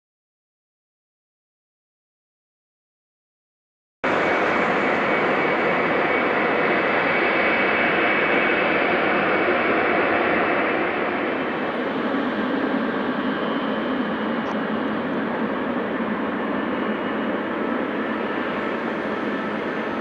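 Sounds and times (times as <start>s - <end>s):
jet engines at takeoff power: 4.0s - 20.0s.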